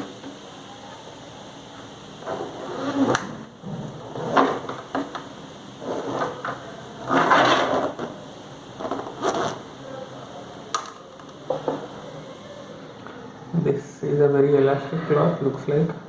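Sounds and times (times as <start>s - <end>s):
rustling: 2.2s - 9.8s.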